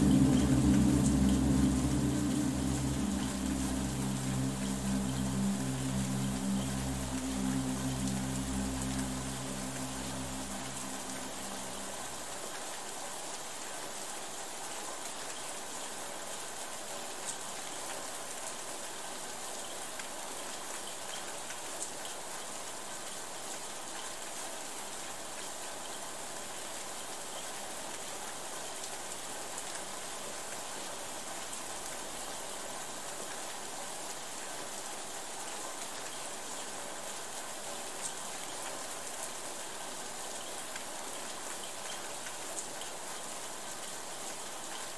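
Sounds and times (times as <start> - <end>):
low hum: 0.0 - 12.3
steady rain falling: 0.0 - 44.9.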